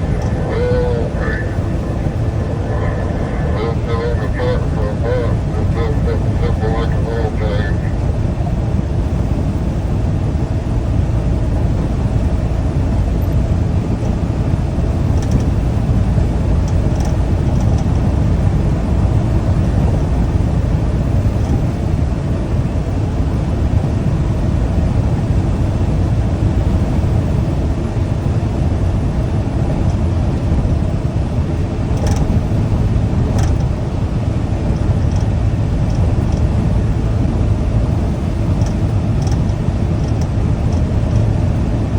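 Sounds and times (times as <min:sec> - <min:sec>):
truck engine and tyre rumble: 0:00.0 - 0:41.9
faint clicks: 0:32.0 - 0:32.3, 0:38.6 - 0:41.2.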